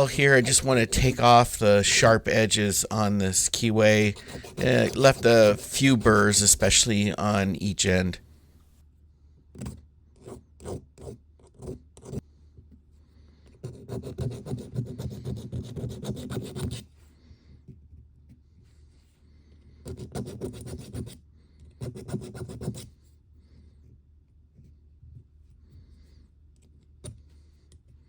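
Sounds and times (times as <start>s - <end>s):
hand file filing metal: 0.0s - 6.8s.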